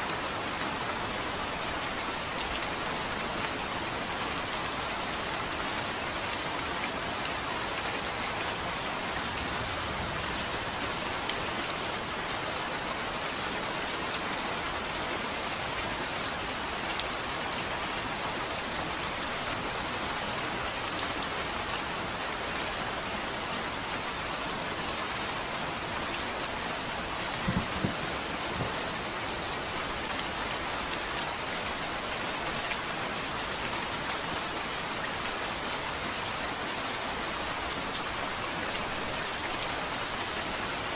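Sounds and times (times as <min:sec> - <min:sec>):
rain falling: 0:00.0 - 0:40.9
raindrops ticking on a surface: 0:13.0 - 0:40.9
low thump: 0:27.4 - 0:28.0.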